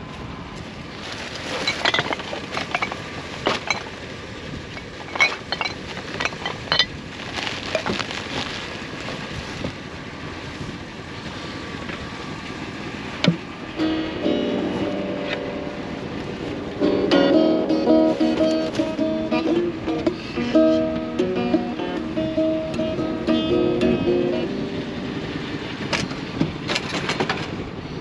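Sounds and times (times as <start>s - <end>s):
steady background hiss: 0.0s - 27.0s
junk clinking and knocking: 1.5s - 4.0s, 4.7s - 7.0s.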